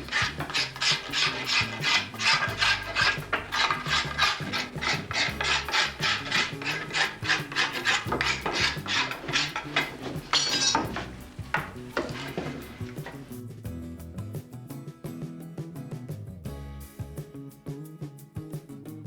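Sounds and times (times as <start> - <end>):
hand tool scraping wood: 0.0 - 13.3.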